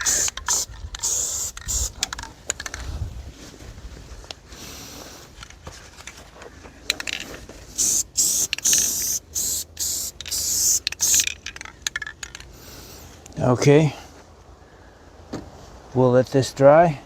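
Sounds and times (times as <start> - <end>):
spray paint can hissing: 0.0 - 2.3, 7.7 - 12.4.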